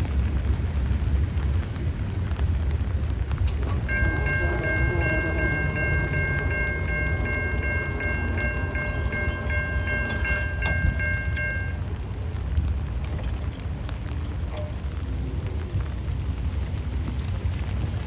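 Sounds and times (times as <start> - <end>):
rain: 0.0 - 18.0
train rumbling: 0.0 - 18.0
railroad crossing bell ringing: 3.3 - 12.1.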